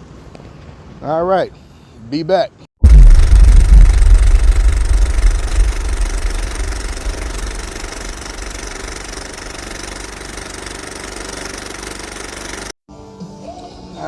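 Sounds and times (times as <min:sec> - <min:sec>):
vehicle engine rumbling: 0:02.8 - 0:10.3.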